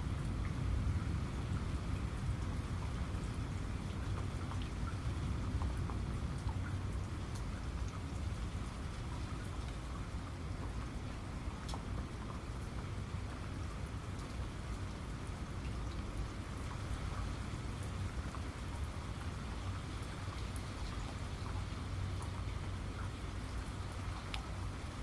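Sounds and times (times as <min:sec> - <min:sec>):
steady rain falling: 0:00.0 - 0:25.0.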